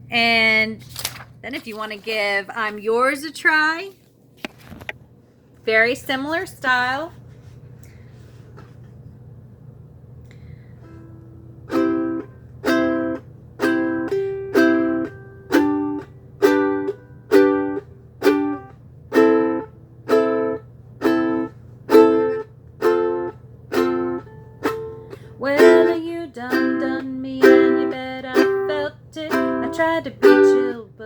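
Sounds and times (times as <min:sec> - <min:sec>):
ukulele strumming: 0:10.8 - 0:31.0.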